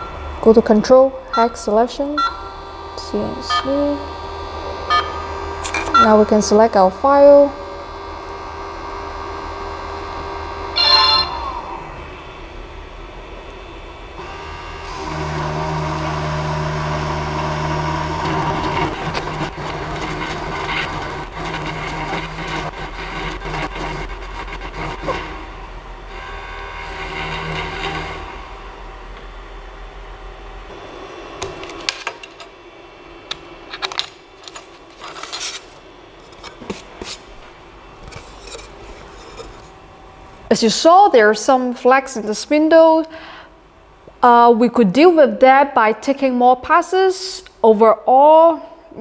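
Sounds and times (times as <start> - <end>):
spindle motor humming: 0.0 - 44.5
bit cutting workpiece: 2.2 - 29.5.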